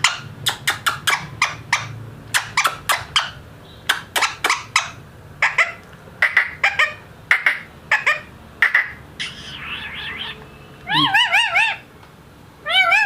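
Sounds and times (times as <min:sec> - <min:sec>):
parakeet rasping chatter: 0:00.0 - 0:11.9
parakeet squawking: 0:00.0 - 0:11.9, 0:12.6 - 0:13.0
parakeet warbling call: 0:04.2 - 0:11.9, 0:12.7 - 0:13.0.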